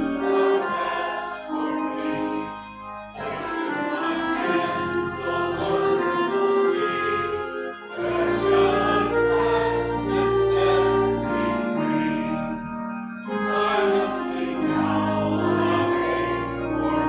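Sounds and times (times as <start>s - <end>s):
choir singing a hymn: 0.0s - 17.0s
instrumental accompaniment: 0.0s - 17.0s.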